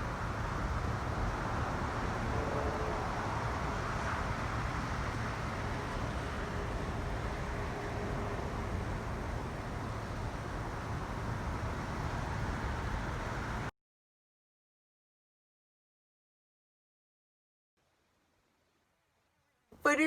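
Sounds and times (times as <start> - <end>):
vehicle road and engine noise: 0.0 - 13.7.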